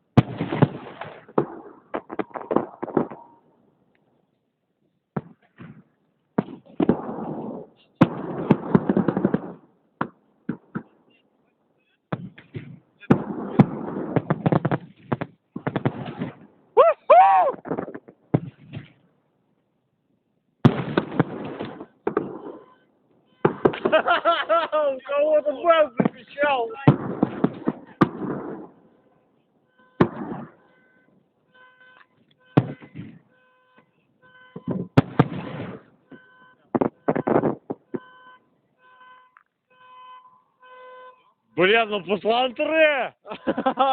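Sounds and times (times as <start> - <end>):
sharp firework bangs: 0.0 - 3.4, 5.2 - 11.2, 12.1 - 16.6, 17.5 - 19.0, 20.6 - 29.1, 29.7 - 33.4, 34.2 - 38.1
fireworks crackling bangs: 0.0 - 3.6, 5.1 - 11.2, 12.1 - 16.8, 17.4 - 19.1, 20.6 - 38.2, 38.8 - 43.9
car alarm beeping: 21.0 - 43.9.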